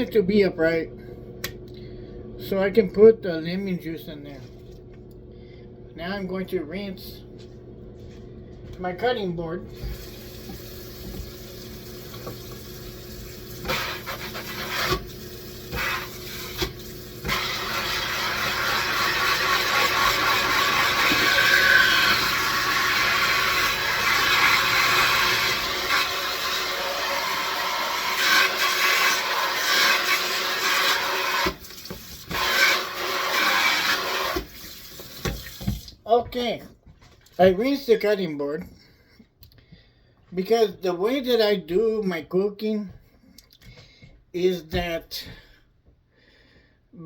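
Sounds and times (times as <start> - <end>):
tap water running into sink: 9.8 - 36.0.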